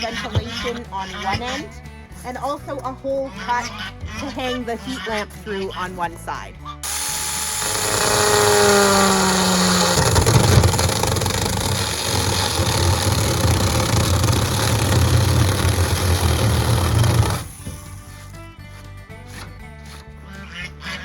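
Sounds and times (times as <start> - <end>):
mini chainsaw cutting: 6.8 - 18.4.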